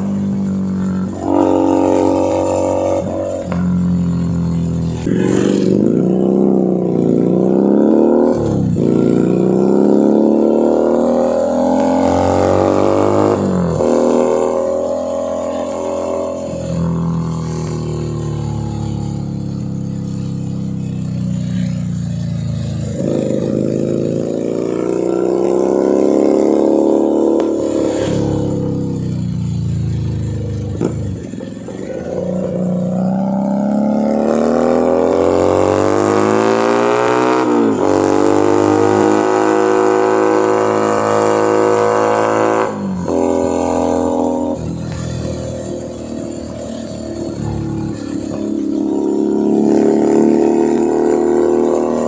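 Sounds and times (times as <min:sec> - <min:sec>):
motorcycle engine accelerating: 0:00.0 - 0:52.0.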